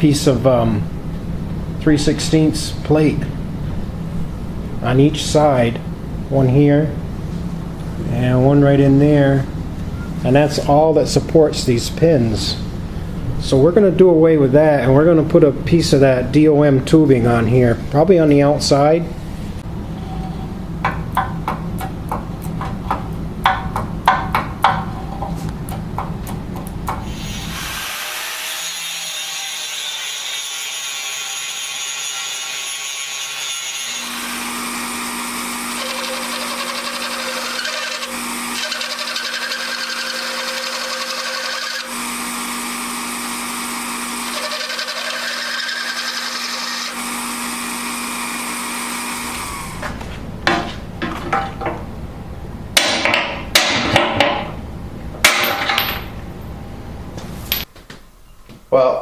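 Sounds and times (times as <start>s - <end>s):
power drill boring into steel: 34.0s - 49.8s.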